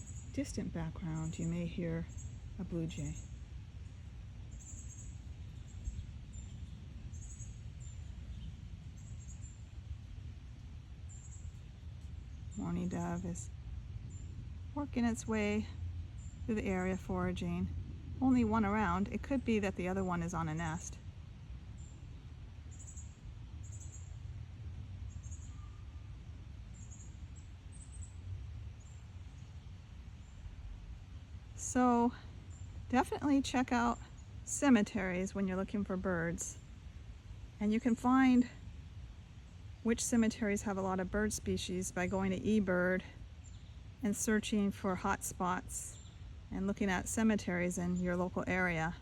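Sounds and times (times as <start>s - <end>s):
steady low rumble: 0.0s - 49.0s.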